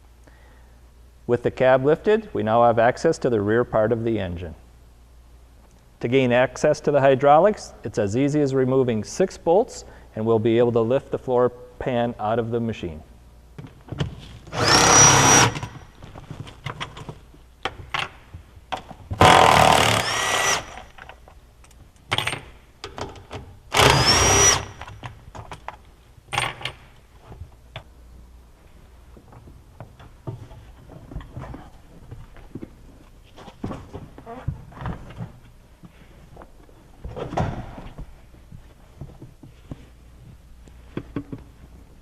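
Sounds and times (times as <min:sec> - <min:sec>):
power driver spinning: 0:14.5 - 0:15.7, 0:23.8 - 0:24.8.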